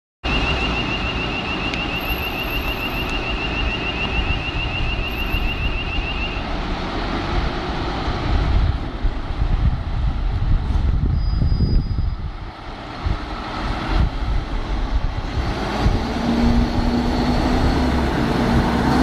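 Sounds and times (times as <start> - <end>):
fire truck siren warbling: 0.2 - 6.5, 15.6 - 19.0
vehicle engine and road noise: 0.2 - 19.0.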